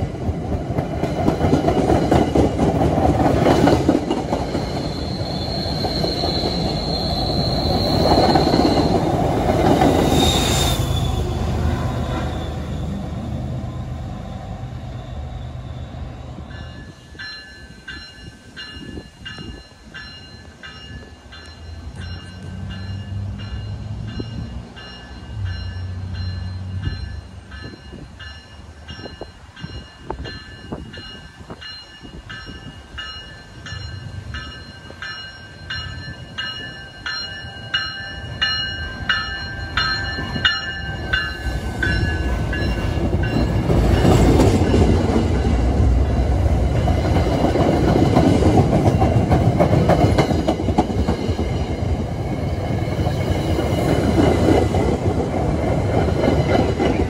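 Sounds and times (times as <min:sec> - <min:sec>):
train rumbling past: 0:00.0 - 0:57.0
train bell ringing: 0:15.0 - 0:48.0.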